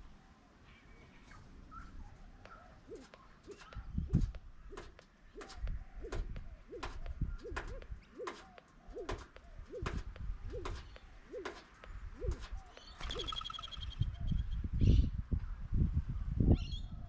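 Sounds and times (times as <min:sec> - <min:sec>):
pigeon cooing: 0:01.7 - 0:13.9
sharp clicks: 0:02.4 - 0:13.6
small bird trilling: 0:02.5 - 0:14.6
low thumps: 0:03.6 - 0:13.0.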